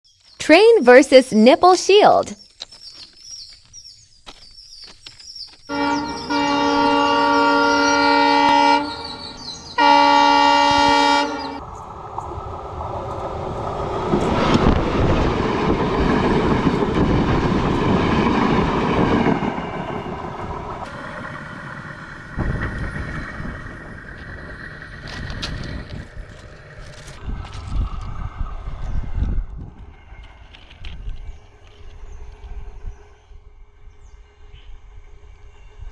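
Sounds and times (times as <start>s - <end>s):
train wheels on rails: 2.5s - 35.9s
train horn blasts: 5.7s - 11.6s.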